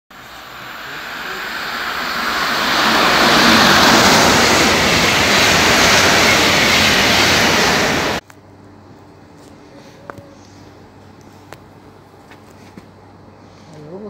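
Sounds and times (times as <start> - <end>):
electric train passing at speed: 0.1 - 8.2.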